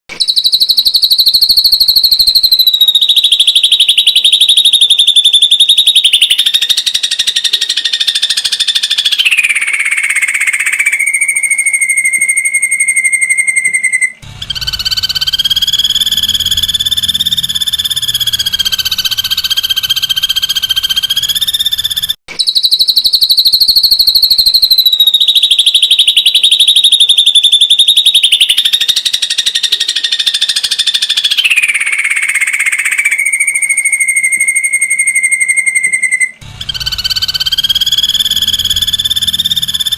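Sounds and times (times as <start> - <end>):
low hum: 14.2 - 22.2, 36.4 - 39.9.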